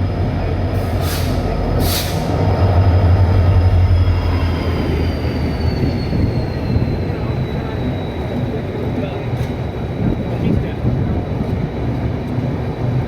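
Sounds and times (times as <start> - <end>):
train wheels rumbling on track: 0.0 - 13.0
short hisses: 0.8 - 2.4.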